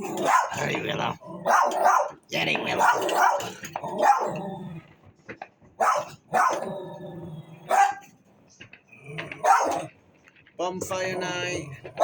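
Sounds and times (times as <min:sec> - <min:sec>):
dog barking: 0:00.0 - 0:00.7, 0:01.4 - 0:04.4, 0:05.8 - 0:06.7, 0:07.6 - 0:08.1, 0:09.4 - 0:09.9.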